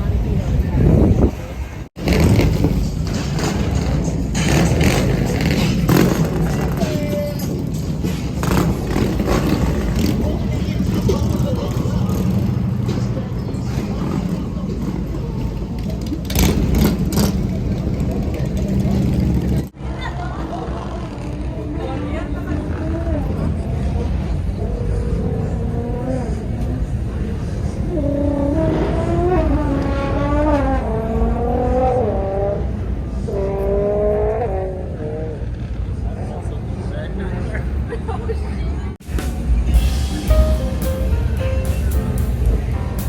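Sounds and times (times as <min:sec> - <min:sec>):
traffic rumble: 0:00.0 - 0:43.0
melody of held notes: 0:39.1 - 0:43.0.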